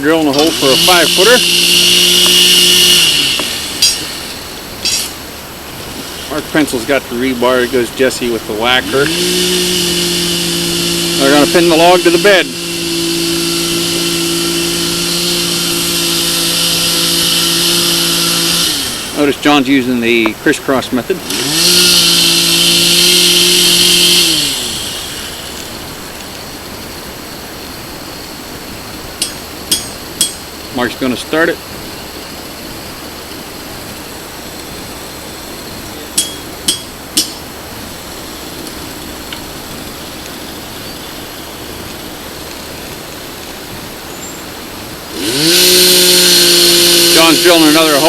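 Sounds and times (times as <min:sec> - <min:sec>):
two-stroke engine drill boring: 0:00.0 - 0:26.5, 0:45.0 - 0:48.0.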